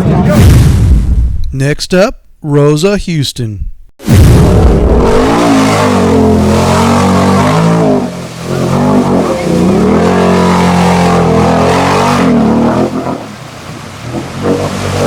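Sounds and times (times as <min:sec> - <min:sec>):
off-road engine revving: 0:04.1 - 0:15.0.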